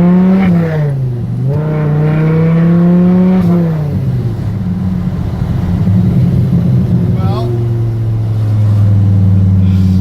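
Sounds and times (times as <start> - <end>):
car engine accelerating hard: 0.0 - 10.0.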